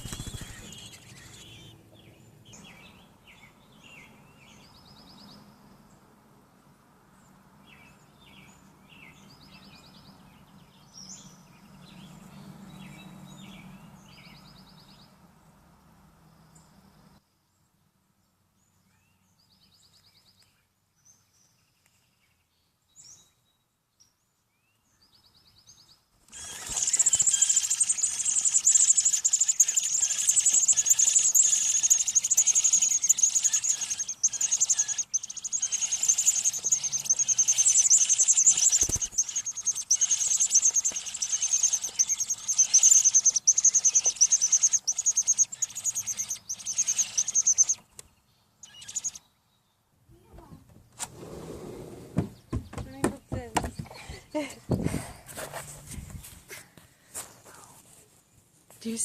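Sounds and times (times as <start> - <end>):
nestlings begging peeps: 0.0 - 5.4, 26.3 - 49.3.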